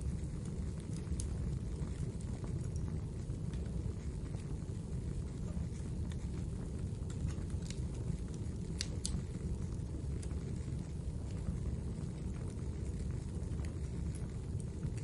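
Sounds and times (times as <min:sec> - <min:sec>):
fire rumbling and crackling: 0:00.0 - 0:15.0
sharp fire pops: 0:00.0 - 0:15.0.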